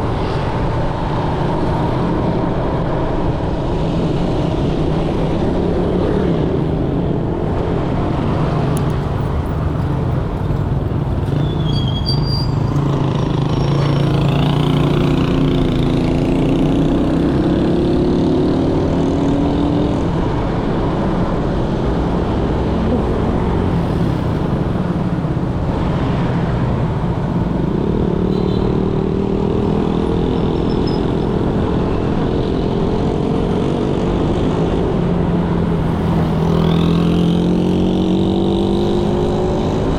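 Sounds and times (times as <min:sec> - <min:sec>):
traffic hum: 0:00.0 - 0:39.9
wind: 0:00.0 - 0:39.9
motorcycle engine revving: 0:08.8 - 0:20.0.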